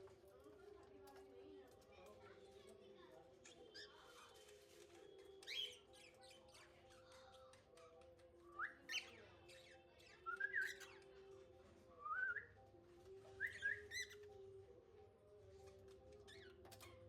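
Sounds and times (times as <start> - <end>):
cockatiel whistling chirps: 13.3 - 14.2.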